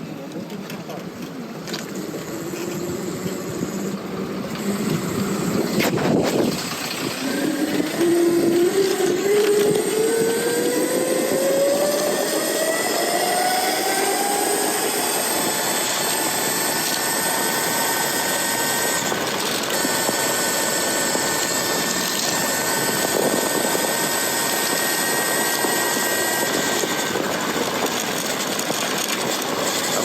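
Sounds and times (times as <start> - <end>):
electric motor whining: 1.1 - 30.0
wind rushing: 4.8 - 16.6.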